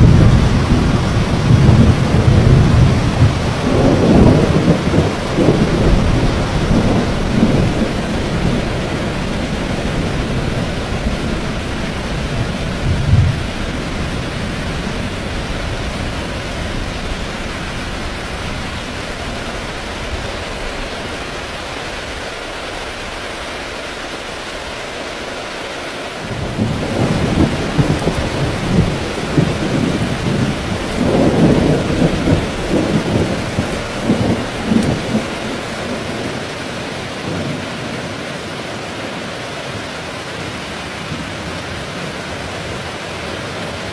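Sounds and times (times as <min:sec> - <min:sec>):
thunder rumbling: 0:00.0 - 0:21.4, 0:26.2 - 0:38.3
heavy rain falling: 0:00.0 - 0:43.9.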